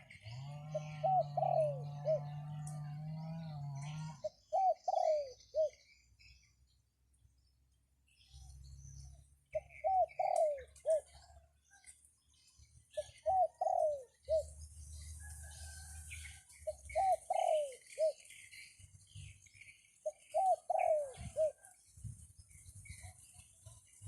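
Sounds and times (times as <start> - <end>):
dove cooing: 0.0 - 5.9, 9.5 - 11.4, 12.9 - 14.6, 16.6 - 18.4, 20.0 - 21.7
small birds chirping: 0.0 - 24.0
wind rumble on microphone: 21.1 - 24.0.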